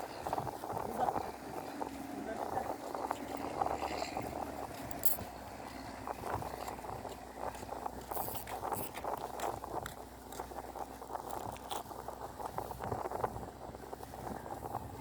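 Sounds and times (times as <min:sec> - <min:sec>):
fishing tackle clicking and rustling: 0:03.1 - 0:13.2.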